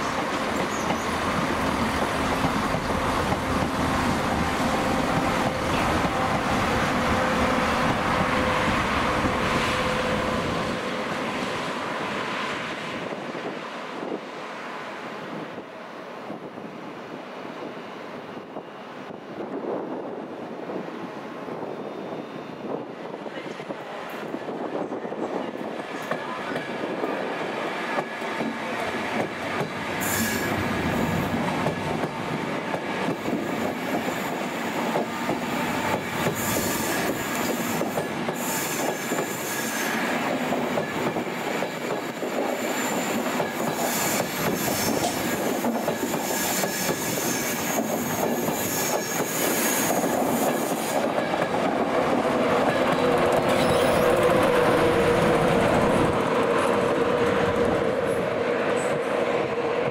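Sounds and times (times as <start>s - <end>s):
clickety-clack of coaches: 0.0s - 3.8s, 40.0s - 55.7s
electric locomotive hum: 0.0s - 14.2s
train rail noise: 0.0s - 59.9s
wheel squeal: 42.6s - 51.0s, 53.5s - 54.3s.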